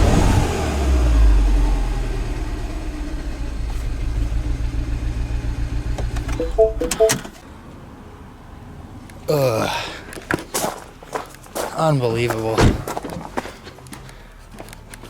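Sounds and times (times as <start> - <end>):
two-note electronic beeps: 6.4 - 7.2
clicks: 6.4 - 7.4.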